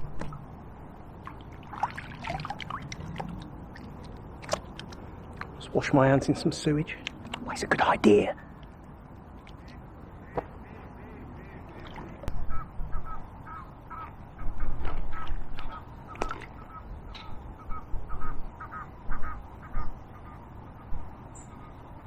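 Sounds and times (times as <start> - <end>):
birds calling: 9.4 - 22.0.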